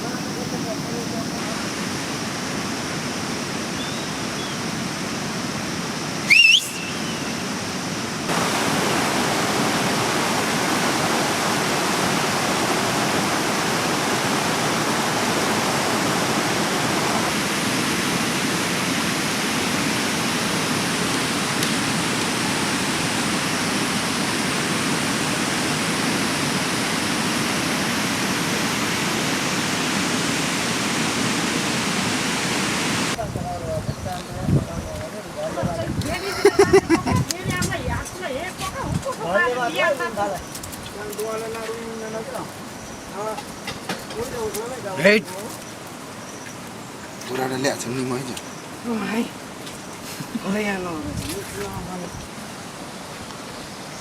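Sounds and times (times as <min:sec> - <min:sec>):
river rushing: 0:00.0 - 0:33.2, 0:35.2 - 0:54.0
high rising whistle: 0:06.2 - 0:07.7.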